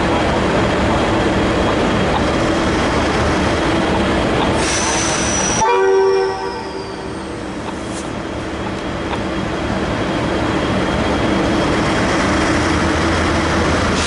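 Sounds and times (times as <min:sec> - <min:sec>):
diesel train engine hum: 0:00.0 - 0:14.0
train horn blast: 0:05.5 - 0:07.4.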